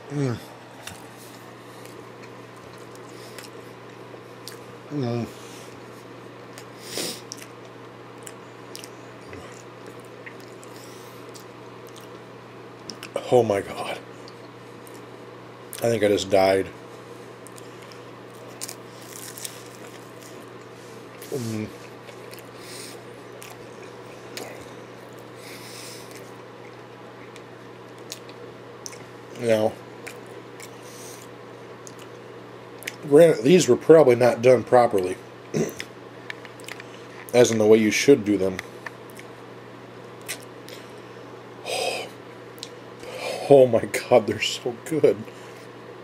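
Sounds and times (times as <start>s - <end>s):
low electrical hum: 0.0s - 46.0s
wet chewing squishes: 6.5s - 12.2s, 17.4s - 29.1s, 31.8s - 32.2s, 35.8s - 37.4s.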